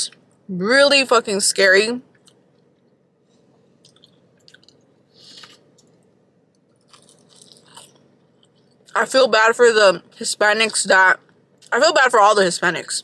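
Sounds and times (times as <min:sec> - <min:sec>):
person chewing food: 0:02.2 - 0:09.0
small mouth clicks: 0:03.8 - 0:06.0.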